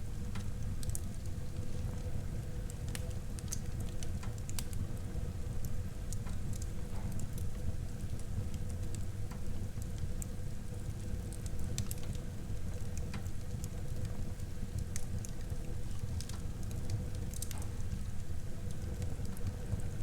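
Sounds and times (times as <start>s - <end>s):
low rumble of flames: 0.0s - 20.0s
logs crackling and popping: 13.0s - 17.6s.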